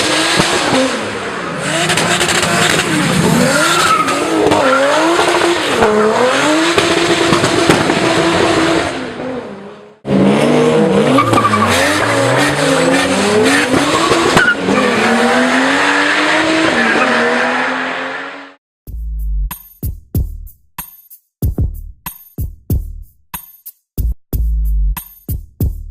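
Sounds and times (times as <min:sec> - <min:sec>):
car engine revving: 0:00.0 - 0:18.6.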